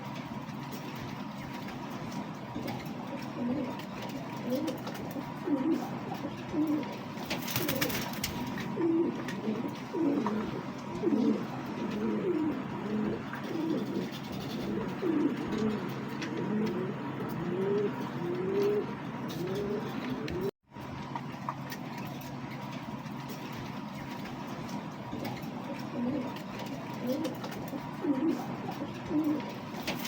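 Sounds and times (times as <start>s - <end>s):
pigeons cooing: 2.2s - 20.5s, 25.1s - 30.0s.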